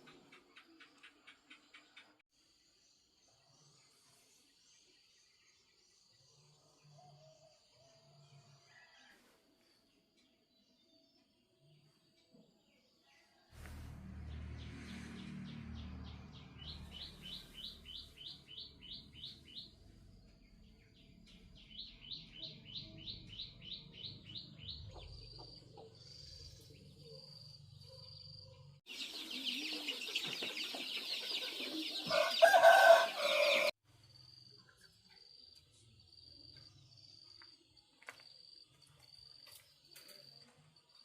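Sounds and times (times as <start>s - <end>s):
chickens chirping rapidly: 28.9s - 33.7s
rooster crowing: 31.9s - 33.8s.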